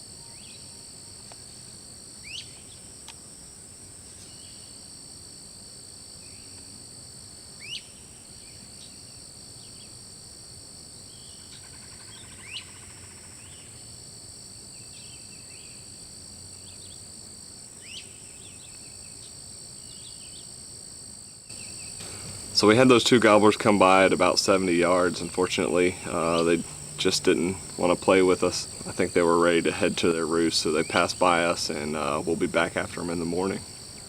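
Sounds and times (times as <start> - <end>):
high-pitched insect drone: 11.1 - 17.0, 21.3 - 34.0.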